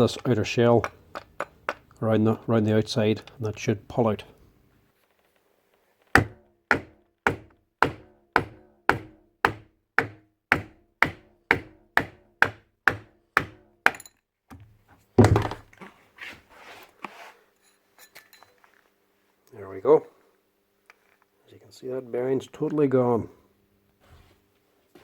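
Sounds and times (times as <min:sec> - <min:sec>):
sharp ringing metal knocks: 0:06.2 - 0:14.2.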